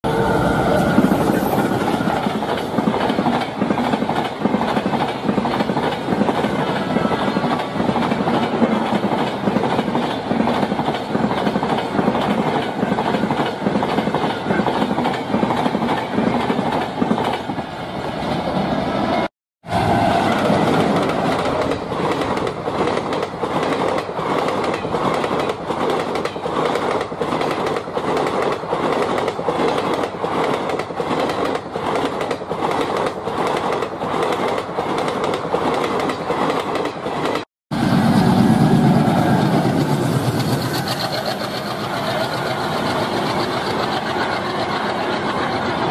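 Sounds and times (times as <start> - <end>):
train wheels clacking over rail joints: 2.2 - 17.6, 20.2 - 37.4, 39.6 - 45.9.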